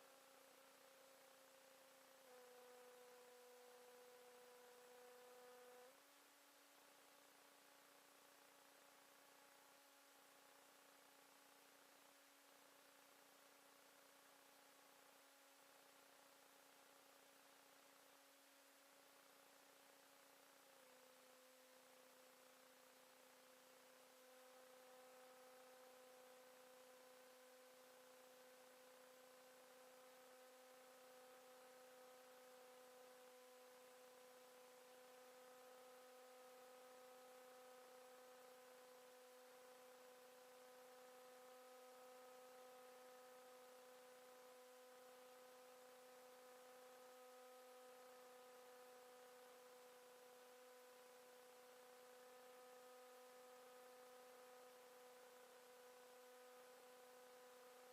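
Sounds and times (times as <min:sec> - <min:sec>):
faint electrical hum: 0:00.0 - 0:57.9.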